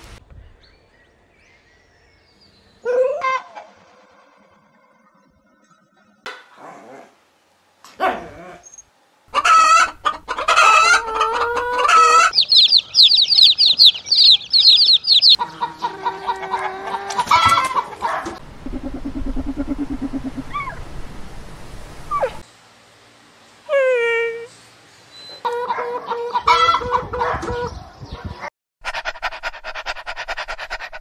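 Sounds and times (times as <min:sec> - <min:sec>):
chickens clucking and squawking: 0:02.8 - 0:04.1, 0:09.3 - 0:21.0, 0:25.2 - 0:31.0
rapid high chirps: 0:12.2 - 0:15.4.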